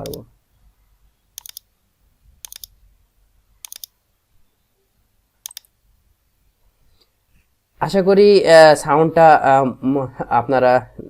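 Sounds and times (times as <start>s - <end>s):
mouse clicks: 1.4s - 1.7s, 2.4s - 2.8s, 3.6s - 3.9s, 5.4s - 5.7s.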